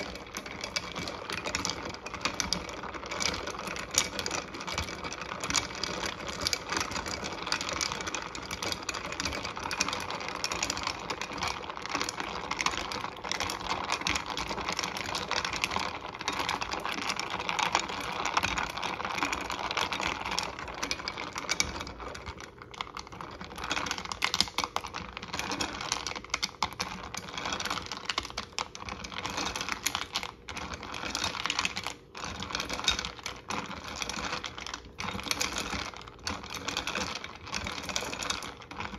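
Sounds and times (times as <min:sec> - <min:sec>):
ladle stirring in glass pitcher: 0:00.0 - 0:38.9.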